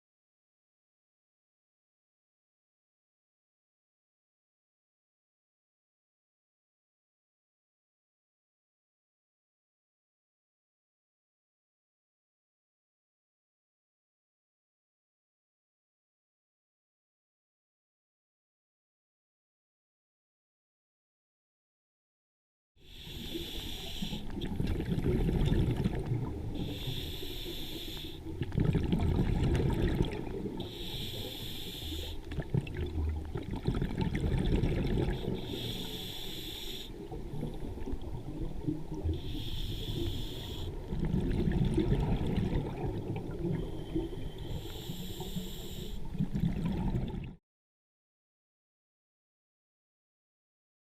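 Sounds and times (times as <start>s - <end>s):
regulator hissing inhale: 22.8s - 24.4s, 26.5s - 28.3s, 30.6s - 32.3s, 35.1s - 37.1s, 39.2s - 40.9s, 43.7s - 46.2s
exhaled bubbles burbling: 24.1s - 26.9s, 28.3s - 30.8s, 32.3s - 35.7s, 40.7s - 44.3s, 46.1s - 47.4s.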